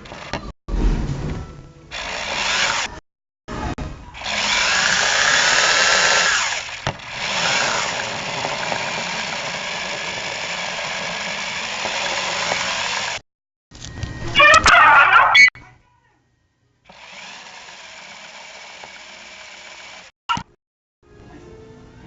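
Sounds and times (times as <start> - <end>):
drone rotors whirring: 4.2 - 13.2.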